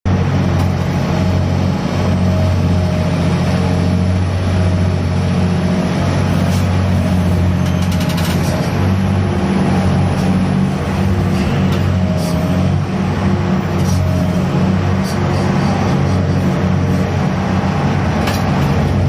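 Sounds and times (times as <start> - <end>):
ship diesel engine drone: 0.1 - 19.0
sharp clicks and knocks: 7.6 - 8.8, 18.2 - 18.8.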